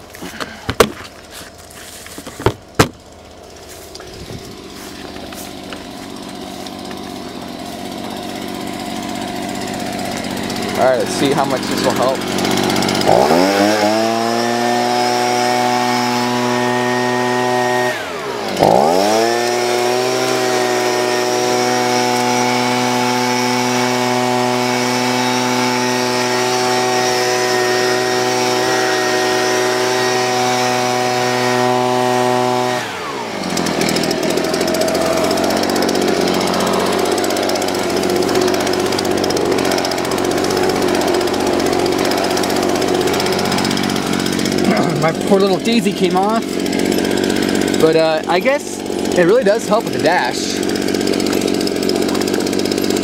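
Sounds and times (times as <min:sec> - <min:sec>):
small engine blower revving: 0:00.0 - 0:53.0.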